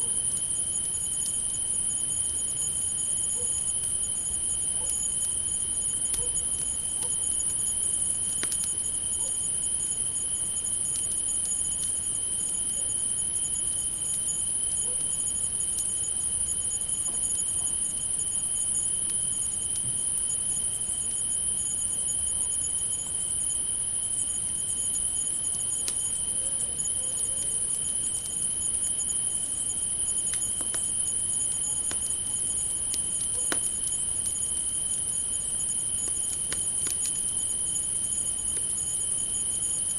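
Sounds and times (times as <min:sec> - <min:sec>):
crickets chirping: 0:00.0 - 0:39.9
campfire crackling: 0:00.3 - 0:14.7, 0:27.8 - 0:39.5.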